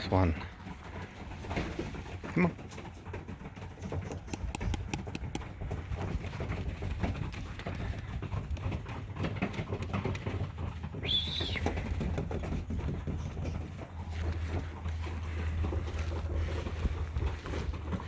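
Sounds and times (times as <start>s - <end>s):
small taps and scuffs: 4.1s - 5.5s.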